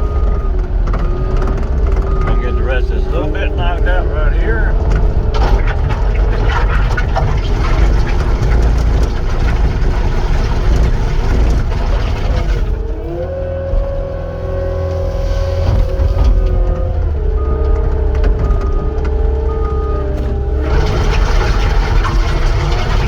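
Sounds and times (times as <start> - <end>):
skid steer diesel engine: 0.0 - 23.0
heavy clatter and scraping: 0.7 - 23.0
steady whine: 2.1 - 6.1.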